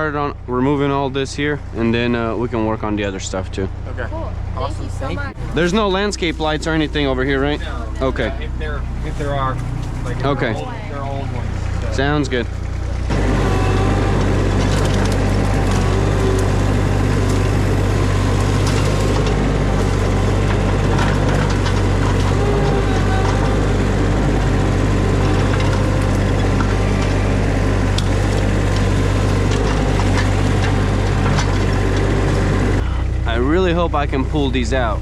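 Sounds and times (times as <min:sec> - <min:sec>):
skid steer engine running: 0:00.0 - 0:35.0
branches cracking and snapping: 0:13.3 - 0:32.4.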